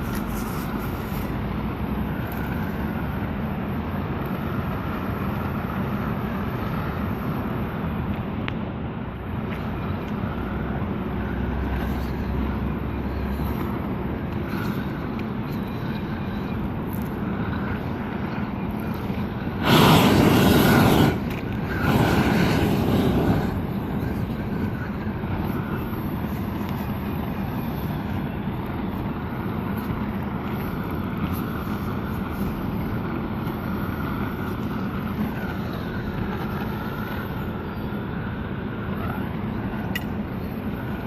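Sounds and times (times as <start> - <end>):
gas torch roaring: 0.0 - 41.0.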